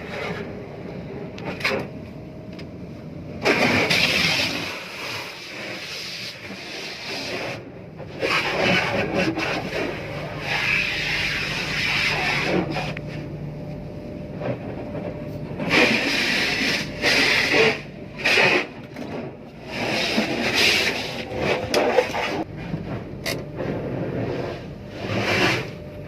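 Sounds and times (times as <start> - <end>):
low vehicle hum: 7.6 - 26.0.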